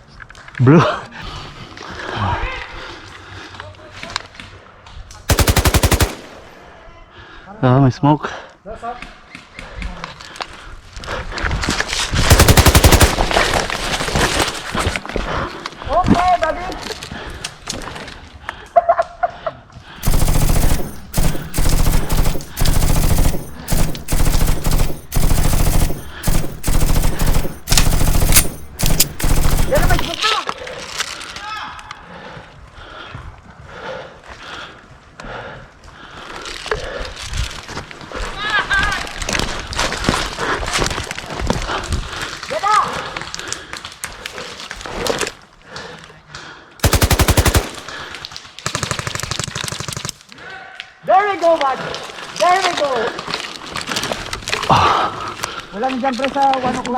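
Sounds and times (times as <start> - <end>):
airsoft gun full-auto bursts: 5.3 - 6.8, 12.3 - 14.0, 20.0 - 30.3, 46.8 - 50.2.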